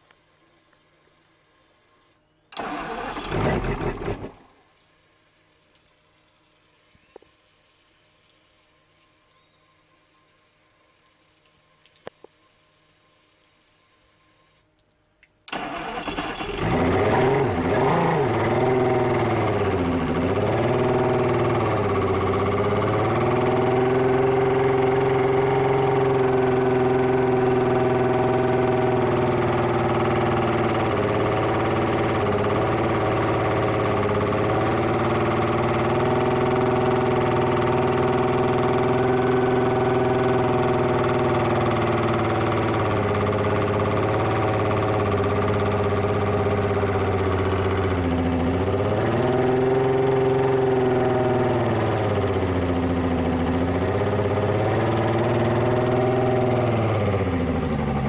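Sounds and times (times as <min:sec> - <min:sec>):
outboard engine starting and idling: 0:02.5 - 0:04.6, 0:15.5 - 0:58.0.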